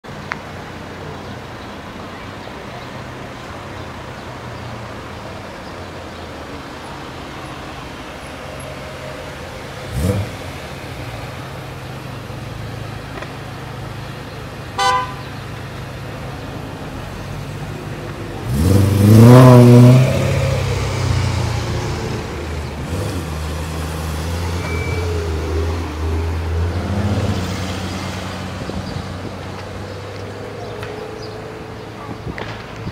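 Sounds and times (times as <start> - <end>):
cars driving off: 0.0 - 32.9
sports car engines idling: 0.1 - 19.2, 20.0 - 32.9
engine revving hard: 9.8 - 10.6, 18.4 - 28.7
car horn toot: 14.8 - 15.4, 24.6 - 25.2.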